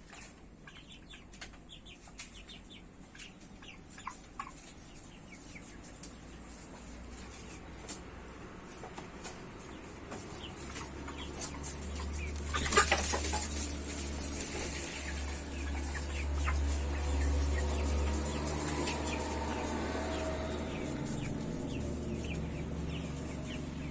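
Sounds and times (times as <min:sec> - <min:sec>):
chickens clucking: 0:00.0 - 0:23.9.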